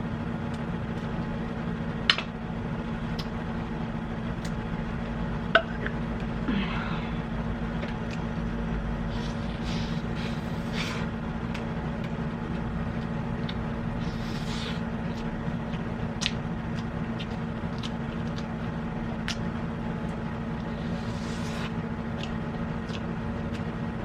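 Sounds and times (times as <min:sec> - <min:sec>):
low background hum: 0:00.0 - 0:24.0
person chewing: 0:09.2 - 0:19.6, 0:20.6 - 0:23.8.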